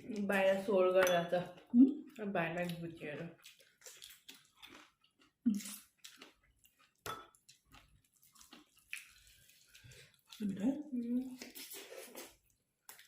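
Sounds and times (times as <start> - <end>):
person chewing food: 3.2 - 10.5, 11.3 - 13.0.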